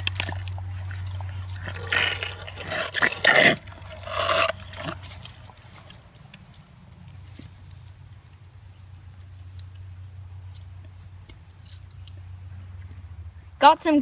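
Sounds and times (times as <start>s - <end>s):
squelching digging in mud: 0.0s - 7.6s.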